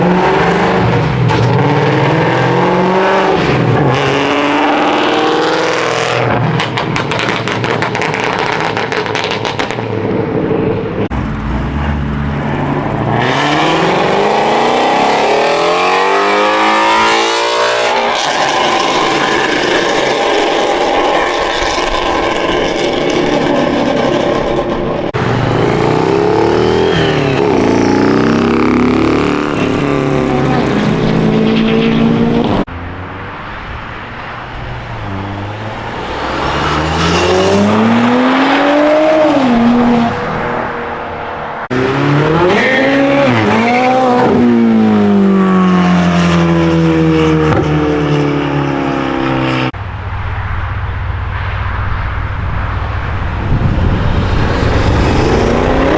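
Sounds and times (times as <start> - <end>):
car engines revving hard: 0.0 - 55.9.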